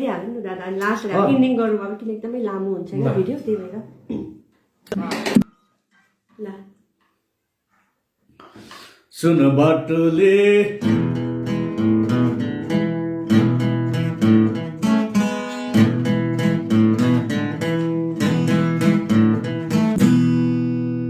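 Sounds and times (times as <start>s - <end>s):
guitar strumming chords: 9.5s - 21.0s.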